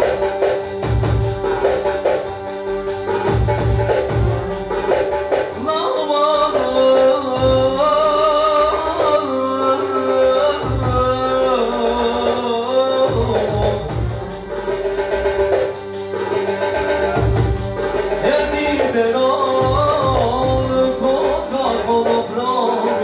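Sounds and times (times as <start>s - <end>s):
deep drum strokes: 0.0s - 5.7s, 13.1s - 22.1s
ornamented folk melody: 0.0s - 23.0s.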